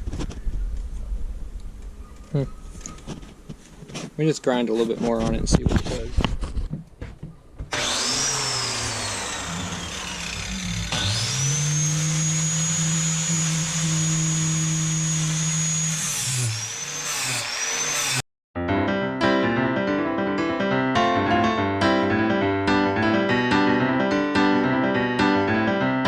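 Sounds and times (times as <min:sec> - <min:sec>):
angle grinder grinding steel: 0:07.7 - 0:18.2.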